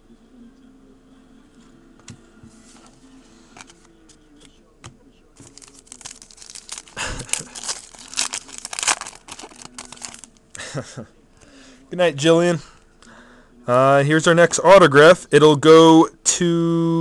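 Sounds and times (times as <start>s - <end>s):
foil wrapper crinkling and tearing: 5.4s - 10.4s.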